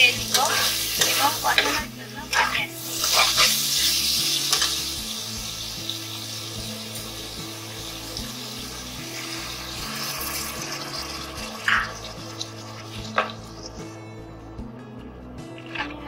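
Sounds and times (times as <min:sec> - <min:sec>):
potatoes sizzling in oil: 0:00.0 - 0:13.9
spatula stirring in pan: 0:00.2 - 0:04.8
water pouring into pan: 0:07.6 - 0:13.7.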